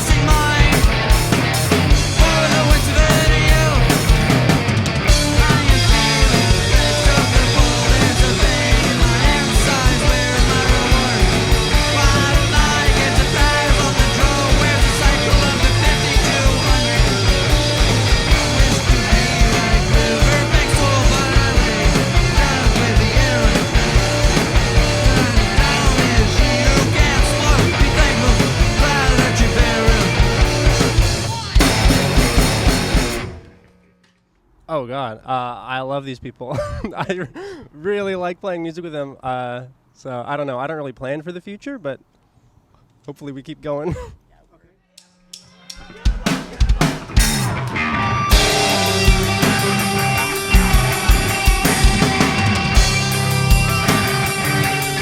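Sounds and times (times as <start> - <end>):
person singing: 0.0 - 1.0, 2.0 - 4.3, 5.3 - 31.7, 44.9 - 55.0
punk rock band playing: 0.0 - 33.9, 45.3 - 55.0.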